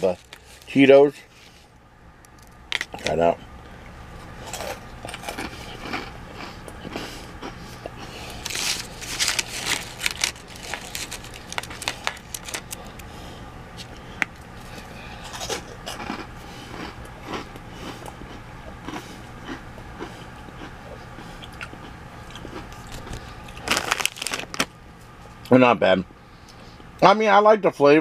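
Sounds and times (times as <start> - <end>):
crunchy snack chewing: 4.4 - 13.1, 14.8 - 24.7.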